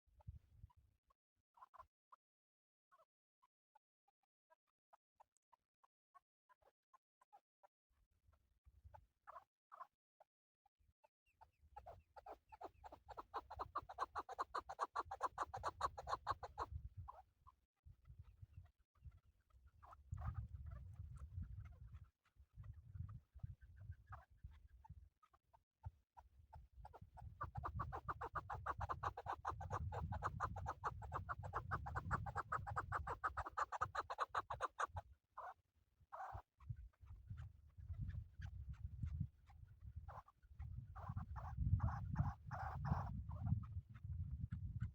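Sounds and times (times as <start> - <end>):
partridge clucking call: 12.6 - 16.7, 26.9 - 35.0.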